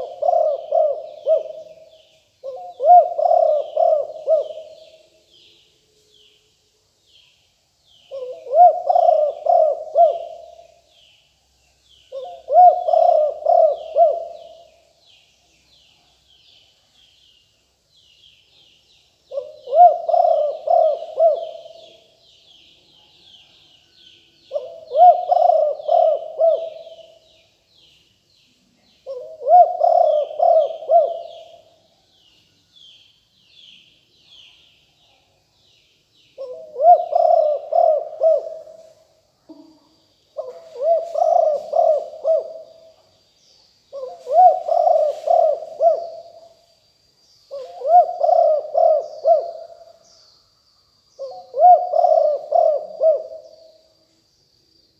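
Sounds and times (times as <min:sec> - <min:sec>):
dove cooing: 0:00.0 - 0:05.1, 0:08.1 - 0:10.8, 0:12.1 - 0:14.8, 0:19.3 - 0:22.2, 0:24.5 - 0:27.2, 0:29.0 - 0:31.8, 0:36.4 - 0:39.8, 0:40.4 - 0:43.0, 0:43.9 - 0:46.6, 0:47.5 - 0:50.0, 0:51.2 - 0:53.9.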